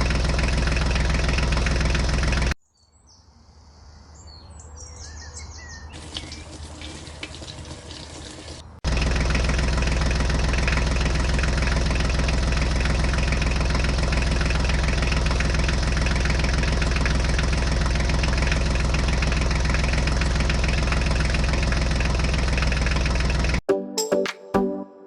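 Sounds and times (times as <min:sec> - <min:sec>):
engine idling: 0:00.0 - 0:02.6, 0:08.8 - 0:23.6.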